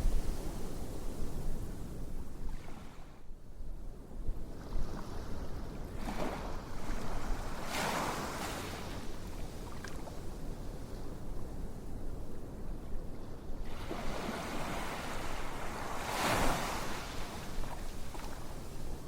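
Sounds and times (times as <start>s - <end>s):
ocean waves washing in: 13.7s - 19.0s.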